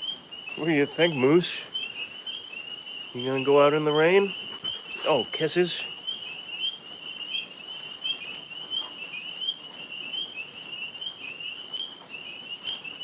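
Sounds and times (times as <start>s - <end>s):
tree frogs chirping: 0.0s - 13.0s.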